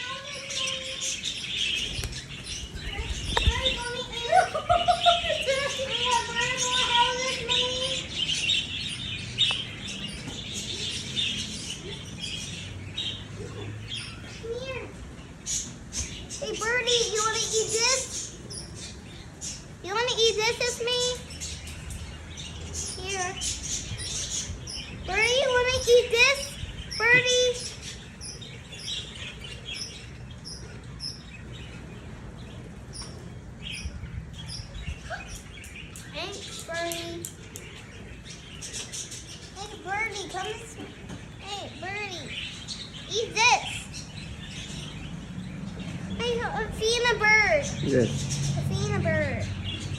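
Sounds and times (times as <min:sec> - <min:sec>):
small birds chirping: 0:00.0 - 0:49.9
low background rumble: 0:00.7 - 0:08.2.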